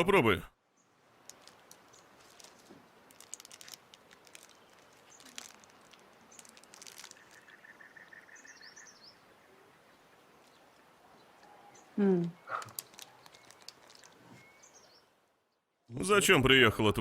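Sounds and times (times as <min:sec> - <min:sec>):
soft rustles and clicks: 0:01.2 - 0:07.6, 0:12.5 - 0:14.8.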